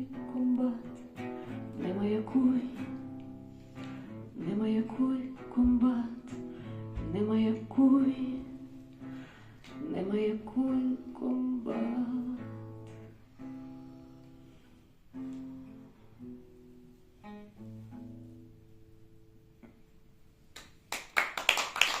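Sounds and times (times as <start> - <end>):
acoustic guitar chords: 0.0 - 20.0
people clapping: 20.5 - 22.0.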